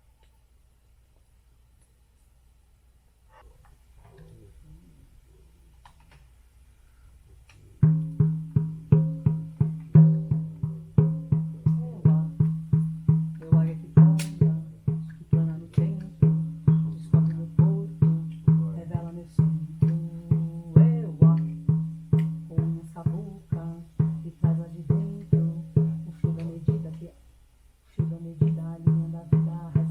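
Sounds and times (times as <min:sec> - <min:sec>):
drum beaten in steady rhythm: 0:07.7 - 0:27.2, 0:28.0 - 0:29.9.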